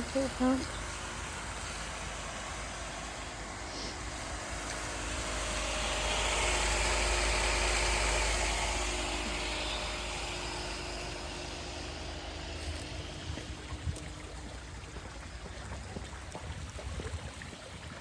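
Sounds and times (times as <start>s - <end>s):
broad hiss: 0.0s - 13.2s
pool pump motor humming: 0.0s - 18.0s.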